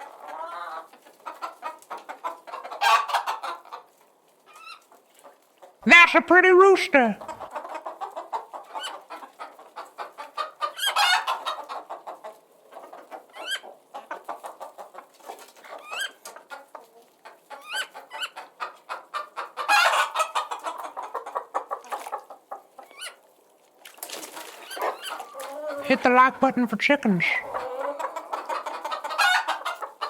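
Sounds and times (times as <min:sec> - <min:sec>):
chickens clucking: 0:00.0 - 0:30.0
loud chicken calls: 0:02.3 - 0:03.8, 0:05.9 - 0:12.2, 0:17.6 - 0:22.2, 0:24.4 - 0:30.0.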